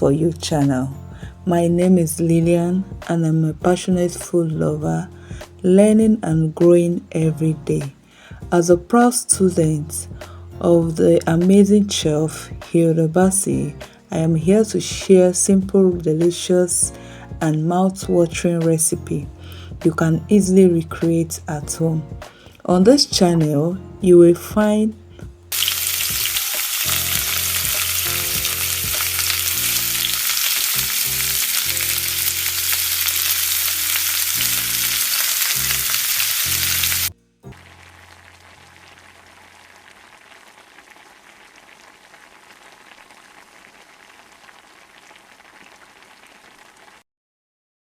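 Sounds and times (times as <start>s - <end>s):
low background music: 0.0s - 39.9s
food frying sizzle: 25.5s - 47.0s.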